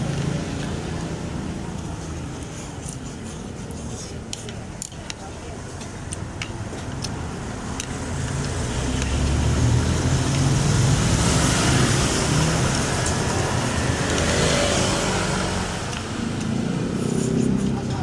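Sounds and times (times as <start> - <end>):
vehicle passing on road: 6.9 - 18.0.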